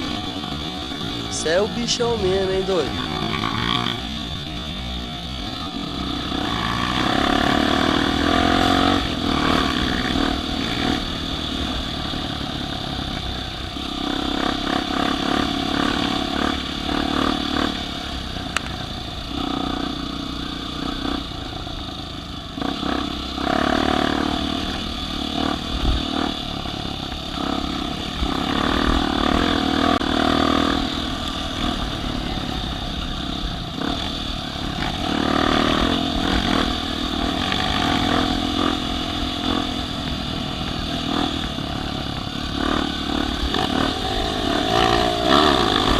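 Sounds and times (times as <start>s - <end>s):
off-road vehicle engine revving: 0.0s - 21.6s, 22.5s - 45.9s.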